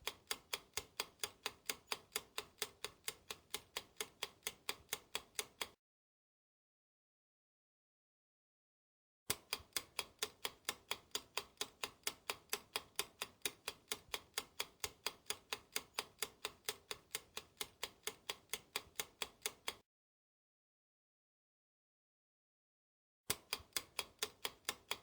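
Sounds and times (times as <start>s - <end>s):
clock ticking: 0.0s - 5.8s, 9.3s - 19.8s, 23.3s - 25.0s.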